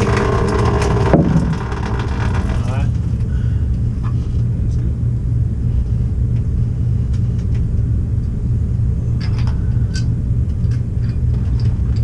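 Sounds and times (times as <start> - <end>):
low machine rumble: 0.0 - 12.0.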